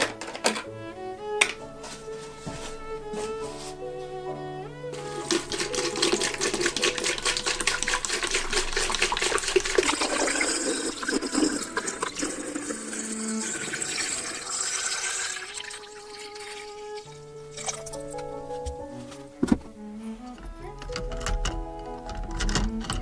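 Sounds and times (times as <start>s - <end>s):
small parts clicking and knocking: 0.0s - 0.7s, 20.4s - 23.0s
water splashing and trickling: 5.0s - 18.2s.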